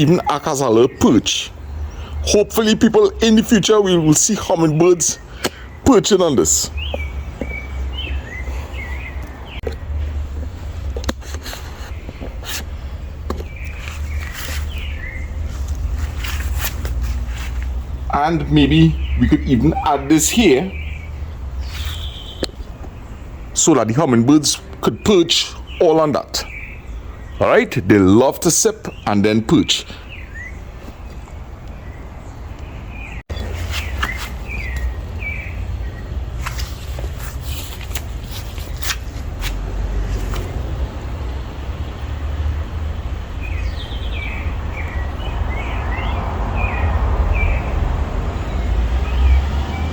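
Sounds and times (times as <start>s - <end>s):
bird chirping: 0.0s - 42.2s, 43.0s - 47.8s
sharp clicks and rustles: 15.4s - 17.8s, 36.3s - 40.7s.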